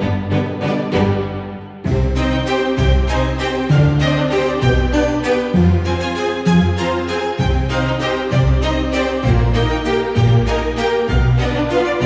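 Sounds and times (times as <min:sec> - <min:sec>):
orchestral music with strings: 0:00.0 - 0:12.0.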